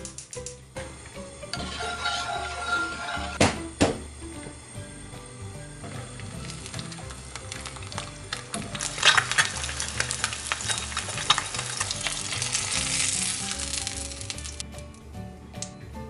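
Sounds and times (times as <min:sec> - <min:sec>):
egg sizzling in oil: 0:01.2 - 0:03.5, 0:05.3 - 0:14.6
spatula scraping a pan: 0:01.6 - 0:03.4.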